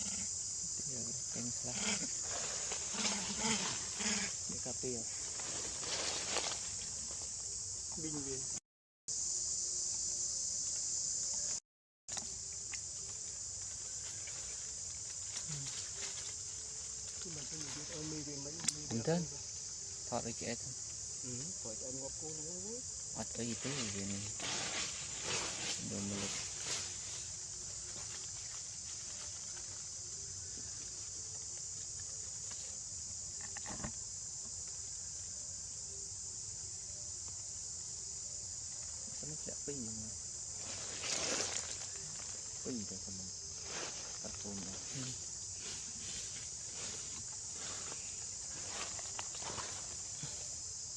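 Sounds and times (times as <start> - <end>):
shrill insect chorus: 0.0 - 50.9.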